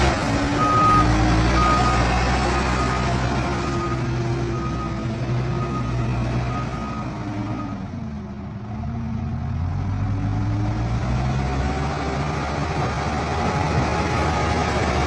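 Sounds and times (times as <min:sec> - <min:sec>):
heavy vehicle engine running: 0:00.0 - 0:15.0.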